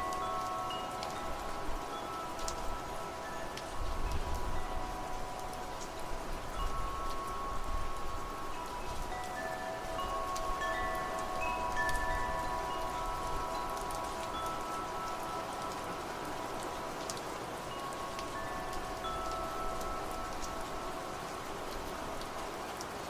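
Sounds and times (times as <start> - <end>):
steady rain: 0.0 - 23.0
wind chimes ringing: 0.0 - 23.0
raindrop ticks: 2.0 - 6.0, 10.1 - 16.0.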